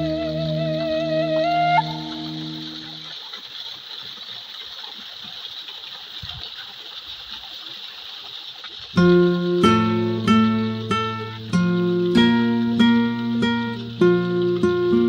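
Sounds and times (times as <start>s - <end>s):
held music notes: 0.0s - 3.1s, 9.0s - 15.0s
plucked guitar: 0.0s - 3.1s, 9.0s - 15.0s
waterfall splashing: 0.0s - 15.0s.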